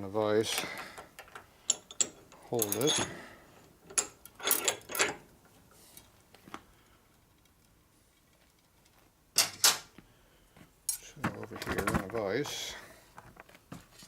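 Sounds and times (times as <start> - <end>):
metal clinks and knocks: 0.7 - 3.2, 3.9 - 5.2.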